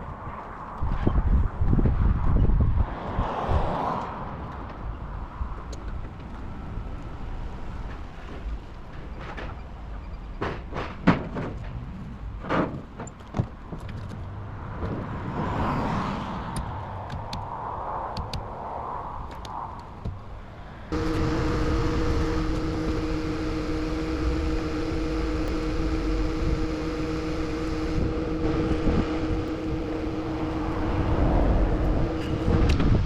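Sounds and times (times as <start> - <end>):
truck engine rumbling: 20.0 - 33.0.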